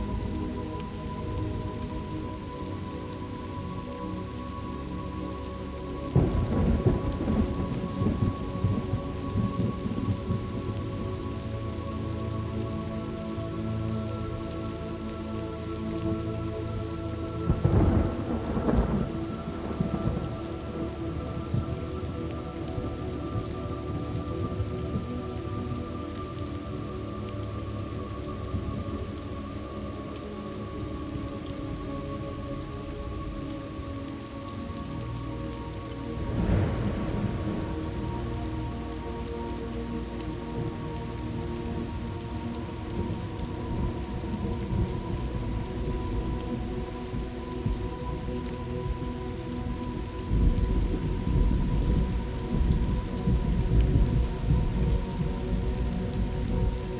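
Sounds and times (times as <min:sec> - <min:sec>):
faint steady tones: 0:00.0 - 0:56.9
heavy rain: 0:00.0 - 0:56.9
thunder rumbling: 0:06.1 - 0:11.5, 0:17.5 - 0:25.8, 0:35.4 - 0:56.9.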